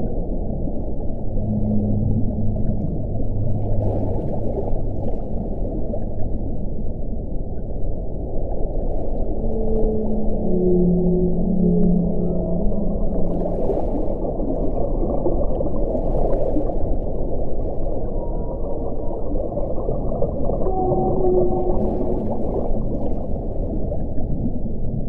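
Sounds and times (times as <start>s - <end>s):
brief low tones: 9.4s - 13.4s.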